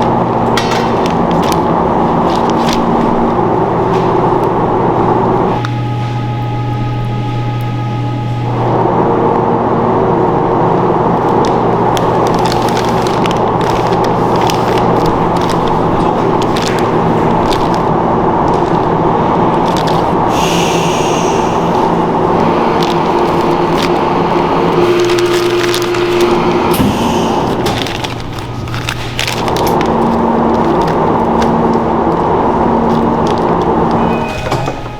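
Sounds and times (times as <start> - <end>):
gas grill burners roaring: 0.0 - 34.9
machinery hum: 0.0 - 34.9
clattering clicks and knocks: 0.4 - 3.0
crackling sizzle: 10.0 - 34.2.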